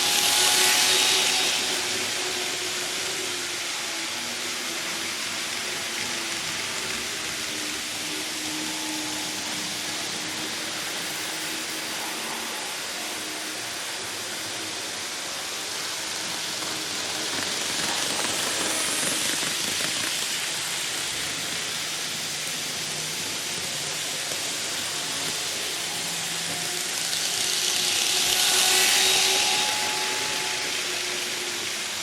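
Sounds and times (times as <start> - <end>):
model train rolling on track: 0.0 - 32.0.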